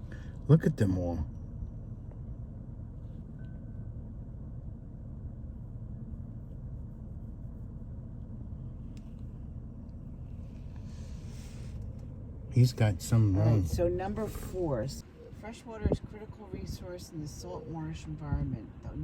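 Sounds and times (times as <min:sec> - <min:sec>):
car engine low rumble: 0:00.0 - 0:19.0.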